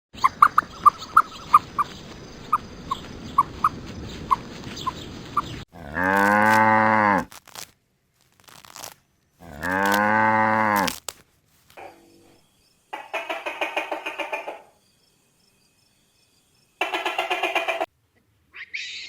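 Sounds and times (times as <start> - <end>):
cow mooing: 5.8 - 7.2.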